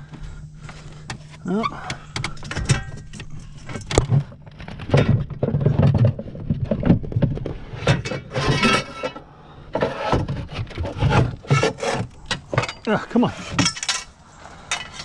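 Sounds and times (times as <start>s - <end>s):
scraping rub: 9.8s - 12.2s.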